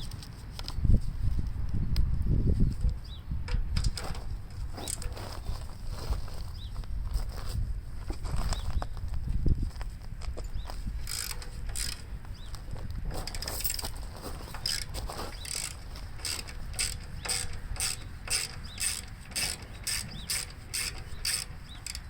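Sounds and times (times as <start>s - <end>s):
socket ratchet clicking: 11.0s - 12.5s, 13.3s - 22.0s.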